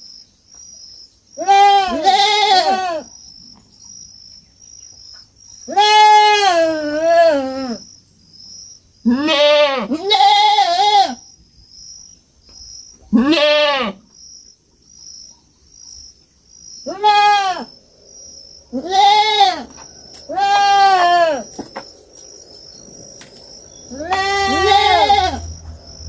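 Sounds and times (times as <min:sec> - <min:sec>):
goat kid bleating: 0:01.4 - 0:03.1, 0:05.7 - 0:07.8, 0:09.0 - 0:11.2, 0:13.1 - 0:14.0, 0:16.8 - 0:17.7, 0:18.7 - 0:19.7, 0:20.3 - 0:21.5, 0:23.9 - 0:25.4.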